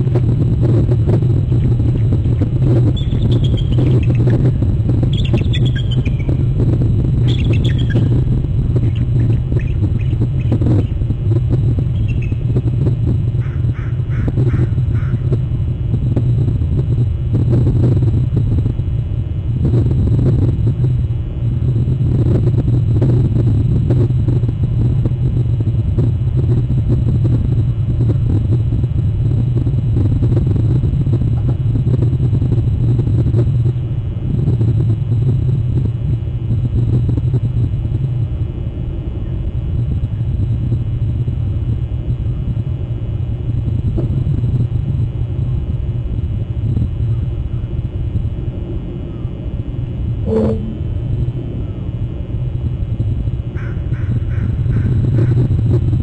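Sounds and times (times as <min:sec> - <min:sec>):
loud low rumble: 0:00.0 - 0:32.0, 0:50.1 - 0:51.8.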